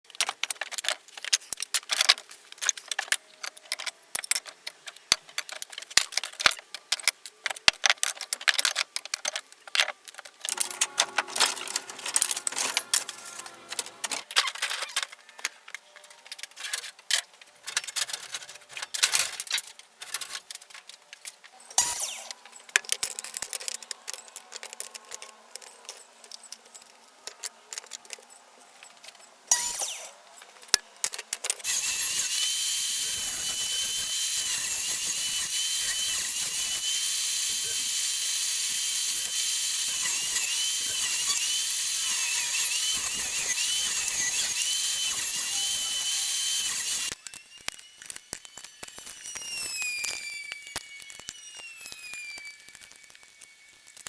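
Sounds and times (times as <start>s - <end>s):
wood strips clattering: 10.4s - 14.8s.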